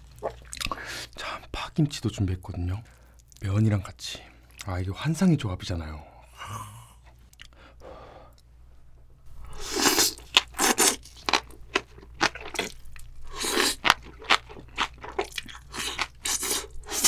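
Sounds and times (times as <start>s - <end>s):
crunchy chewing: 9.6s - 17.0s.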